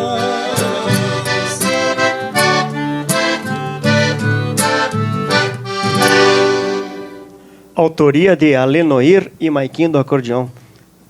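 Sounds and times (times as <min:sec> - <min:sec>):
piano accordion: 0:00.0 - 0:07.7
acoustic guitar chords: 0:00.0 - 0:08.1.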